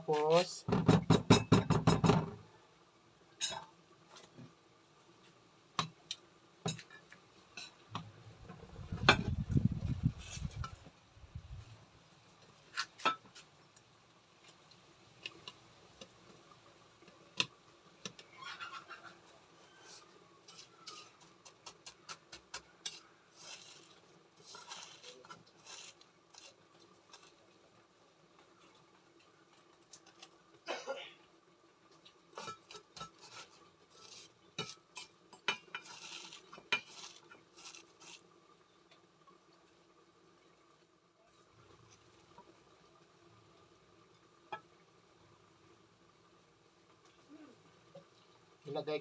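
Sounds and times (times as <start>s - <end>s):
scraping and rubbing: 8.6s - 10.8s, 18.2s - 27.4s, 32.4s - 38.3s
stirring in a bowl: 17.0s - 27.8s, 31.9s - 38.3s.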